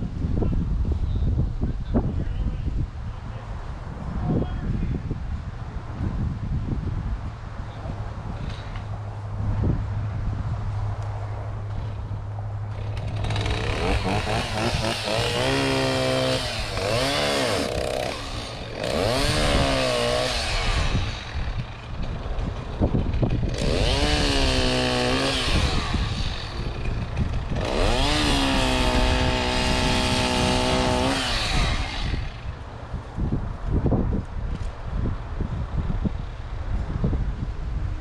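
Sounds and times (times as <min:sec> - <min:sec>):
chainsaw revving: 0:12.7 - 0:32.6.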